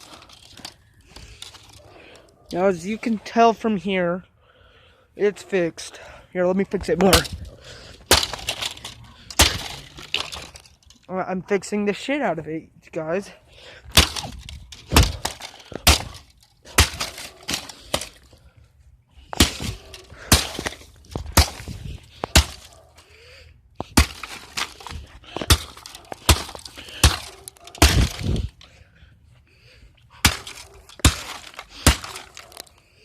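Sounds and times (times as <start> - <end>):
laptop being smashed: 8.0 - 10.7, 13.9 - 18.3, 19.4 - 22.7, 23.9 - 28.6, 30.2 - 32.7.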